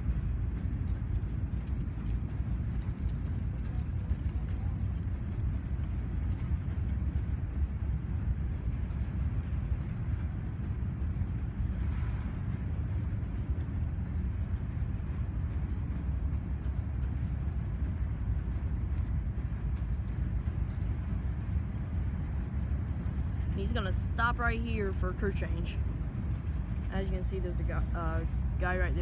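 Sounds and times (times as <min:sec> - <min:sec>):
diesel locomotive rumble: 0:00.0 - 0:29.0.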